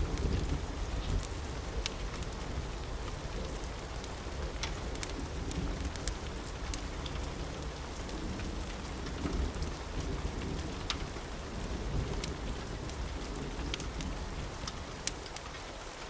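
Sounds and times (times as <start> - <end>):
low thunder rumble: 0.0 - 15.1
steady rain: 0.0 - 16.0.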